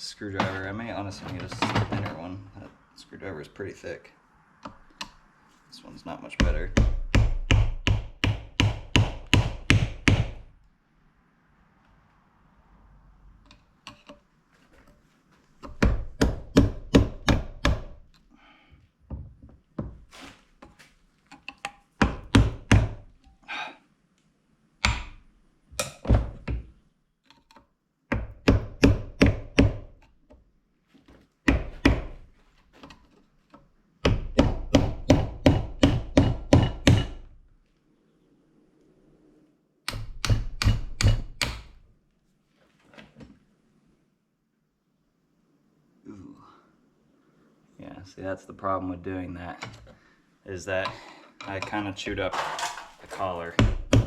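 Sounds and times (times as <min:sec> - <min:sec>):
hammer striking screwdriver: 0:39.9 - 0:41.7.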